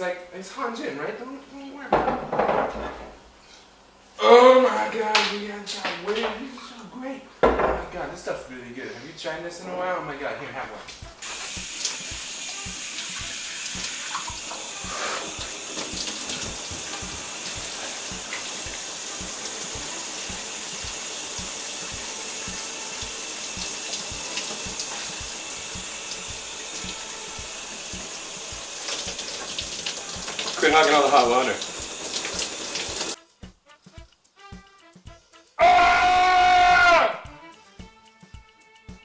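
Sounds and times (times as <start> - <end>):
shower water spraying: 10.6 - 33.2.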